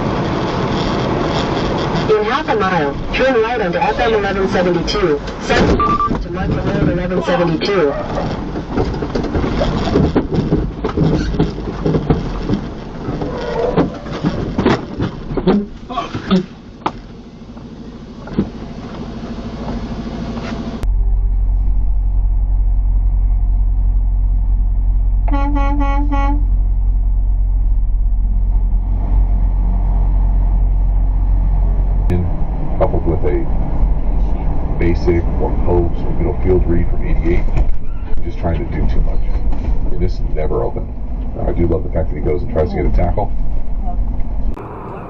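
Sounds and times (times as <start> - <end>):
vehicle engine and road rumble: 0.0 - 45.0
scattered knocks: 8.4 - 15.8
vehicle horn short toots: 25.3 - 26.5.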